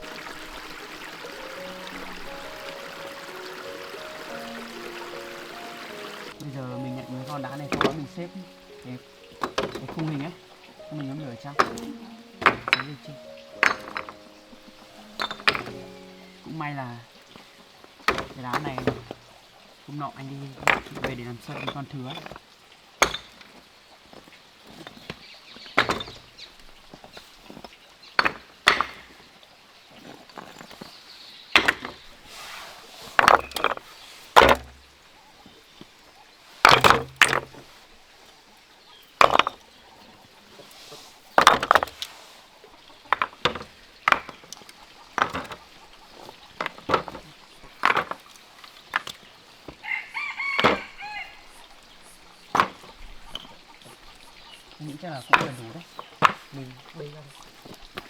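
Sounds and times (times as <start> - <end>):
hard material knocking and clacking: 9.3 - 14.3, 15.1 - 16.0.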